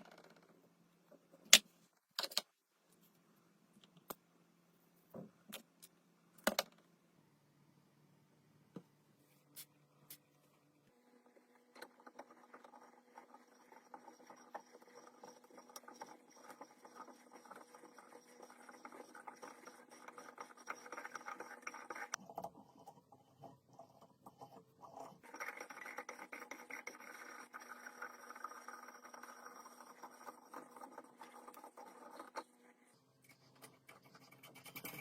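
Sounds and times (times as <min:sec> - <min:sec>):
faint steady hum: 0:00.0 - 0:35.0
faint scratching and scraping clicks: 0:08.8 - 0:35.0.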